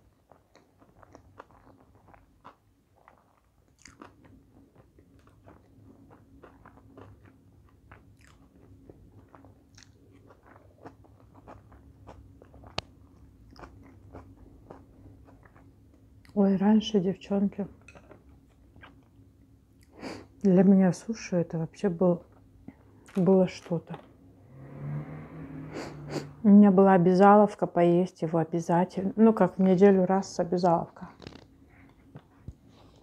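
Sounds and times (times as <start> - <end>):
person chewing: 0.0 - 16.4, 17.8 - 20.0
faint steady hum: 0.0 - 33.0.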